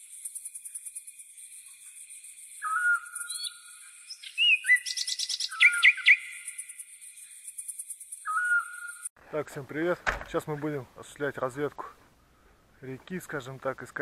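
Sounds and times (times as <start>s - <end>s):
birds whistling and trilling: 0.0s - 9.1s.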